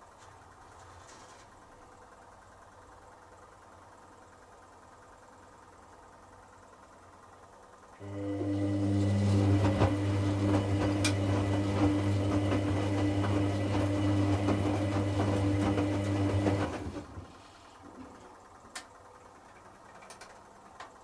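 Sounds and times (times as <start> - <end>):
washing machine motor hum: 1.6 - 21.0.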